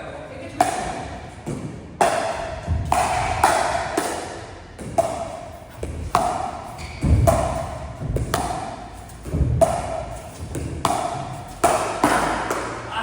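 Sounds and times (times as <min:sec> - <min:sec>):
paddles hitting ball: 0:00.5 - 0:12.9
dull thuds: 0:04.8 - 0:11.5.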